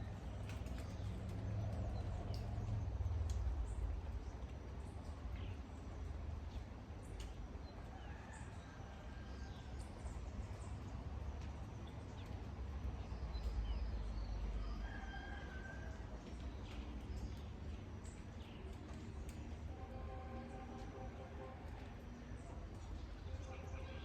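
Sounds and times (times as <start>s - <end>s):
steady rain: 0.0s - 24.0s
dripping ticks: 0.1s - 8.0s, 9.6s - 14.8s, 15.9s - 24.0s.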